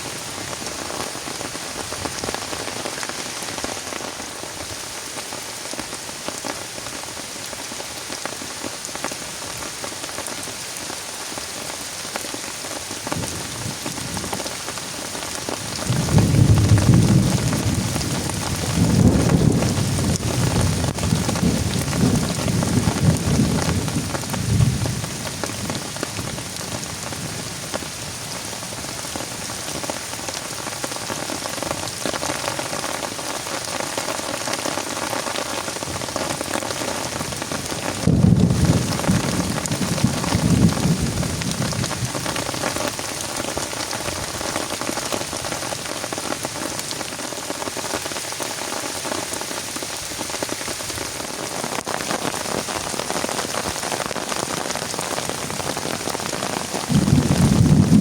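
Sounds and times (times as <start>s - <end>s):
heavy rain falling: 0.0s - 58.0s
low thunder rumbles: 15.8s - 27.5s, 38.0s - 42.6s, 56.8s - 58.0s.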